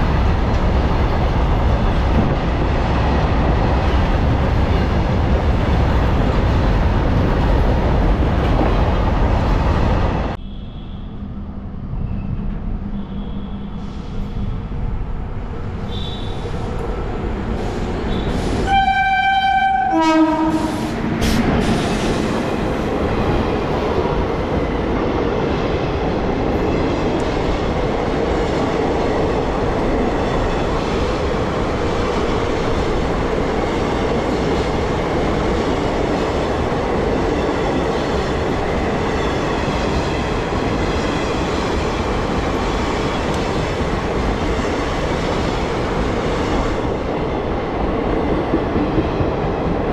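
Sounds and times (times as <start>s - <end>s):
train horn blast: 18.1s - 20.9s.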